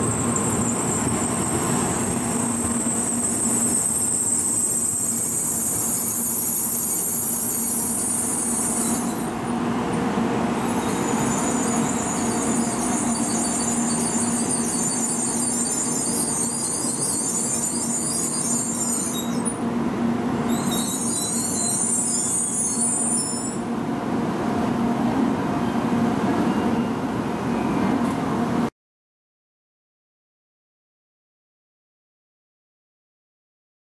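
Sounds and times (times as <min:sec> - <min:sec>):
high-pitched squeal: 0:00.0 - 0:09.4, 0:10.6 - 0:19.6, 0:20.3 - 0:23.7
train running noise: 0:00.0 - 0:28.7.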